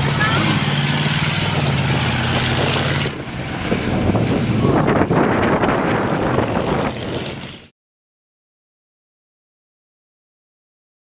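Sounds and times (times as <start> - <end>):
truck engine rumbling: 0.0 - 7.7
wind on microphone: 0.4 - 7.6.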